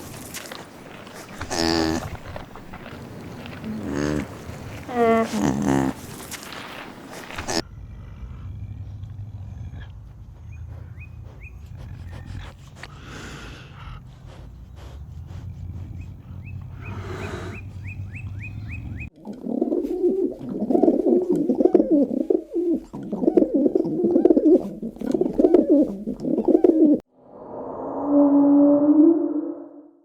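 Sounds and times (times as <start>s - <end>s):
low cooing calls: 1.1s - 7.6s, 14.7s - 27.0s.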